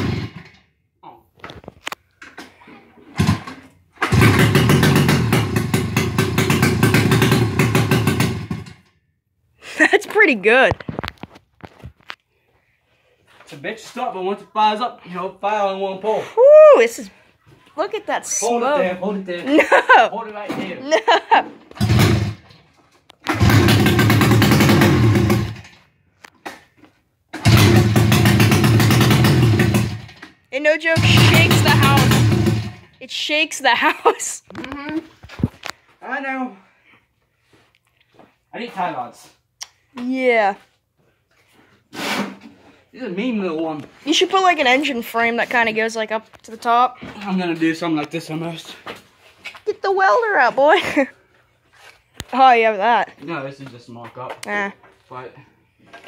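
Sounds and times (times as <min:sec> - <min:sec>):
snowmobile engine revving hard: 0:31.0 - 0:32.7.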